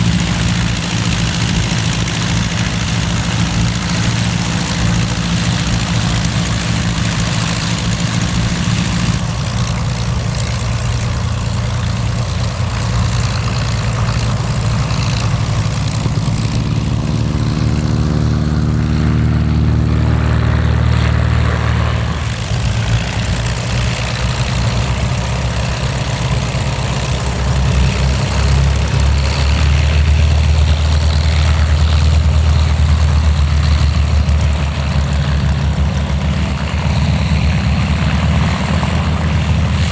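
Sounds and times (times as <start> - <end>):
piston aircraft engine running: 0.0 - 39.9
propeller whirring: 0.0 - 39.9.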